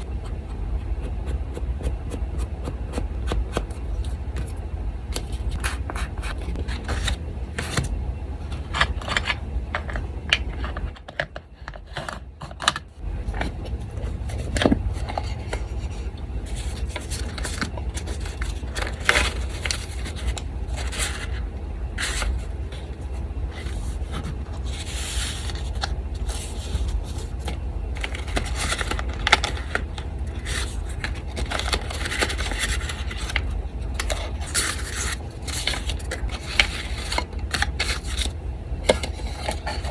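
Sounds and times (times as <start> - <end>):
electric fan humming: 0.0 - 39.9
paper rustling on a desk: 13.3 - 21.4, 22.0 - 38.3.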